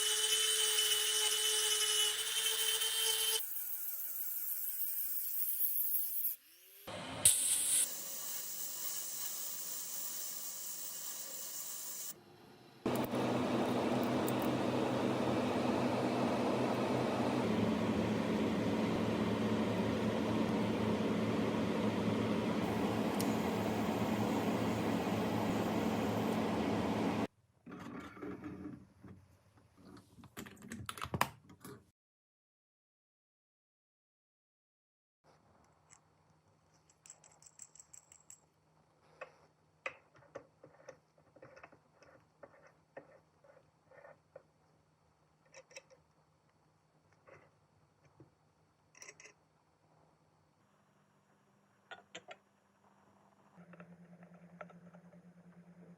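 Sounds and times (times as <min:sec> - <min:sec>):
low mechanical drone: 0:12.9 - 0:27.3.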